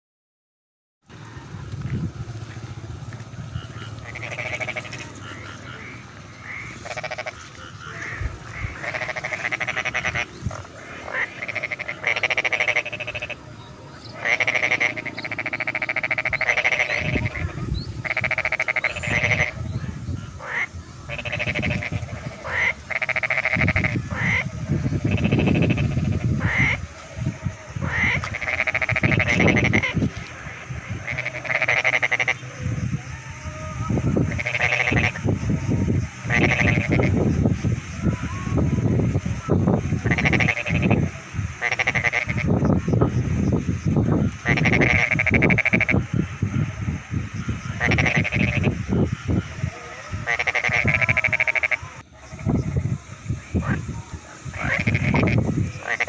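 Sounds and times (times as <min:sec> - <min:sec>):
low rumble: 0:01.1 - 0:11.1
frogs croaking: 0:01.1 - 0:56.0.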